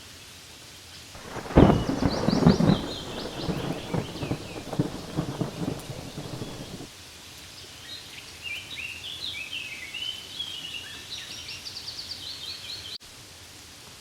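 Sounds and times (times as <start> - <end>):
songbird chirping and trilling: 1.2 - 6.8
light rain on leaves: 1.2 - 9.4.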